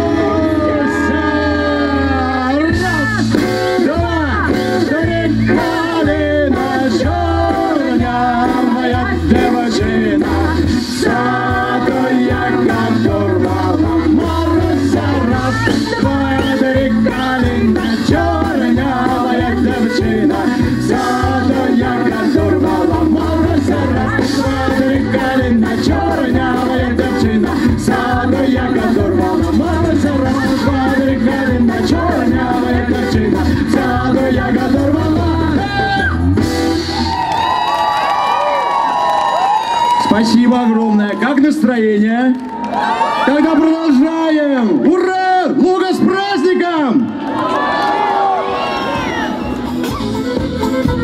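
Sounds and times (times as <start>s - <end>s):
steady bass beat: 0.0s - 37.2s
live band playing folk music: 0.0s - 46.2s, 48.4s - 51.0s.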